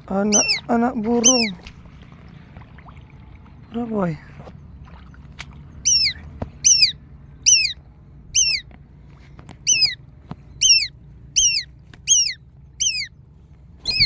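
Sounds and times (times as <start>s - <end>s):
bird's sharp high call: 5.9s - 7.8s, 8.4s - 8.6s, 9.7s - 10.0s, 10.6s - 13.1s.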